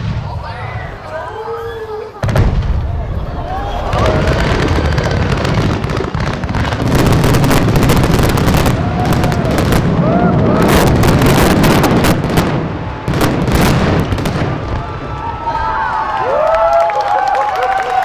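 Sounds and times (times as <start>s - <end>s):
fireworks bangs and crackles: 0.0s - 16.7s.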